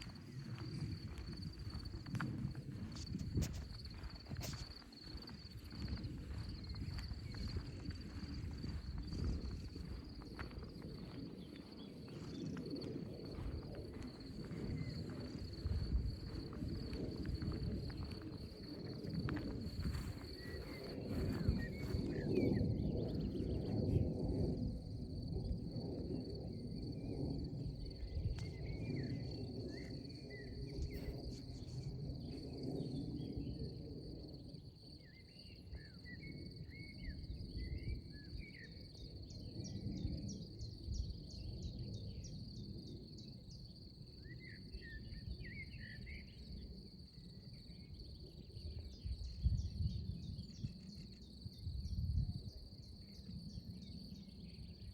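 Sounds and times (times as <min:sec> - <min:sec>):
high insect trill: 0:00.0 - 0:23.8
low wind rumble on microphone: 0:00.0 - 0:54.9.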